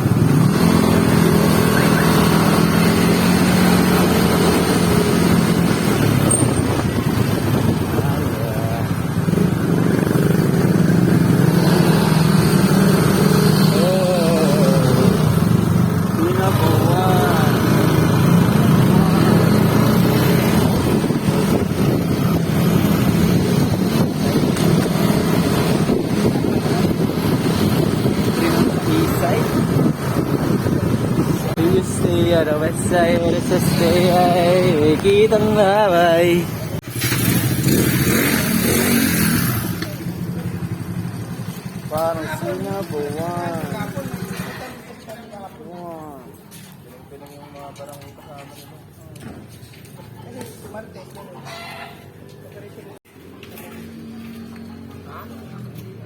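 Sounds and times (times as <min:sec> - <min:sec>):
engine running: 0:00.0 - 0:44.8
wind noise: 0:04.3 - 0:10.4, 0:20.2 - 0:35.6.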